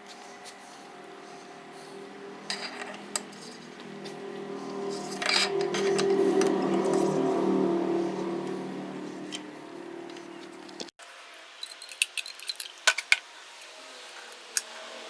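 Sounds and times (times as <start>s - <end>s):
steady hum: 0.0s - 10.9s
metal engine parts clinking: 11.6s - 13.2s.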